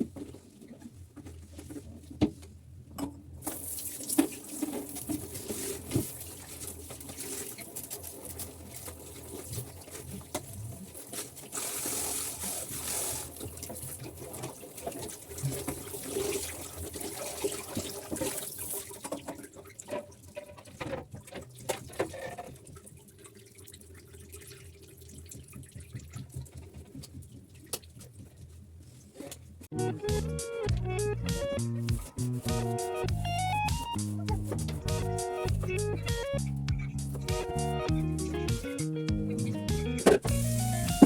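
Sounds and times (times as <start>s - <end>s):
tap water running into sink: 3.4s - 28.0s.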